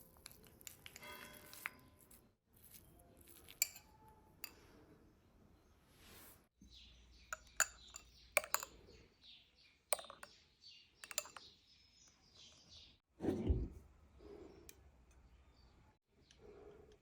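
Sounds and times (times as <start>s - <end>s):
utensils and dishes clinking: 3.4s - 4.7s.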